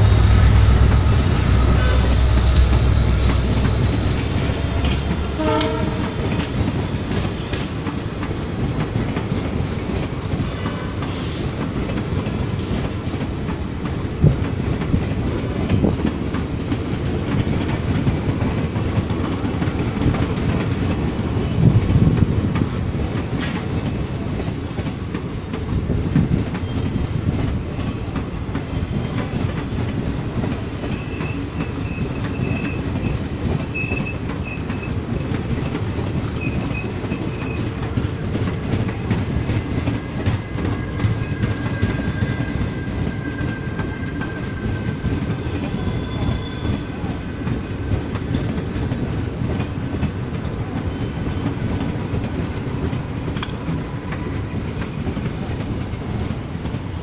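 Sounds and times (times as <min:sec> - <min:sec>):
train horn: 0:00.0 - 0:07.0, 0:45.7 - 0:47.0
train wheels clattering on rails: 0:00.0 - 0:57.0.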